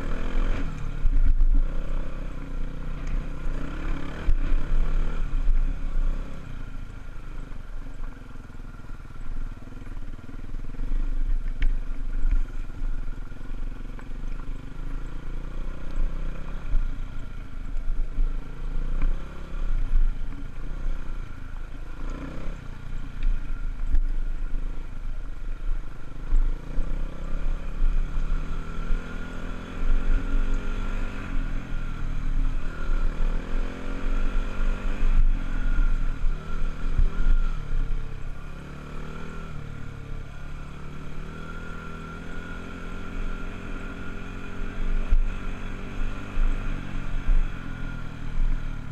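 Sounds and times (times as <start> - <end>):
dirt bike engine revving: 0.0 - 6.7, 26.6 - 48.9.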